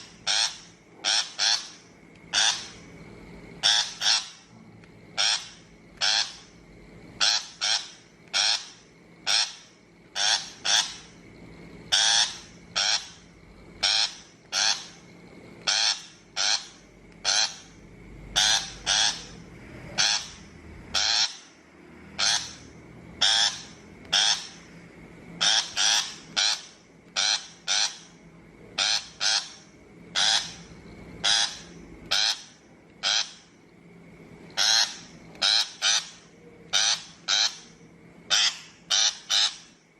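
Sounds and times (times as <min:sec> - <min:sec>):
shrike calling: 0:00.0 - 0:04.5, 0:05.1 - 0:33.7, 0:34.4 - 0:39.9.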